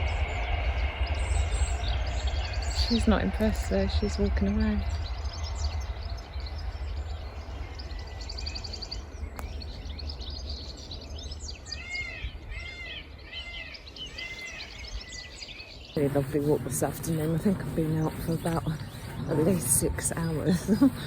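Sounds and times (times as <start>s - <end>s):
steady low rumble: 0.0s - 13.2s, 15.9s - 21.0s
songbirds singing and chirping: 0.0s - 21.0s.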